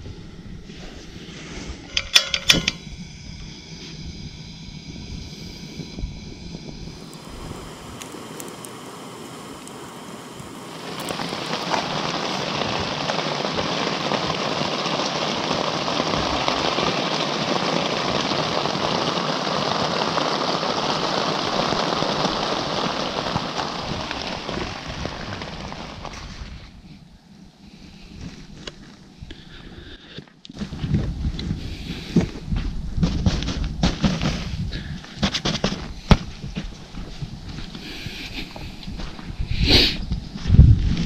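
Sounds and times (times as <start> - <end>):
rain falling: 6.4 - 26.8.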